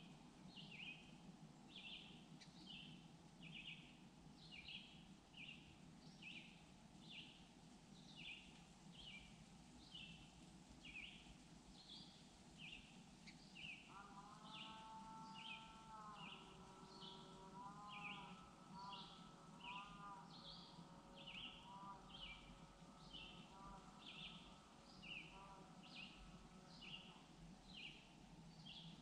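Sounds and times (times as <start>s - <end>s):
faint lakeside ambience: 0.0s - 29.0s
lower drawn-out bird call: 13.8s - 26.2s.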